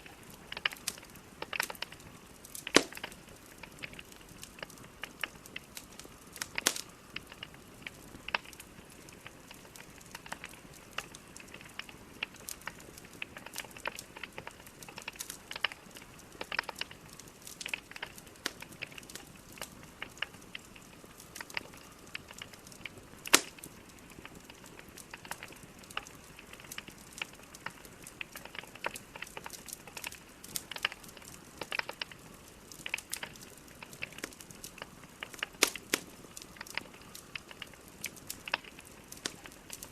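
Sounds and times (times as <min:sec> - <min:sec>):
wood logs burning with crackles: 0:00.0 - 0:39.9.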